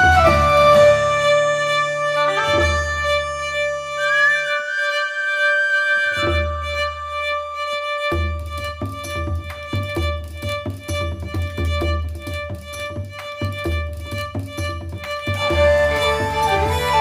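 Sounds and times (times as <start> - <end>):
background music with steady beat: 8.1 - 17.0.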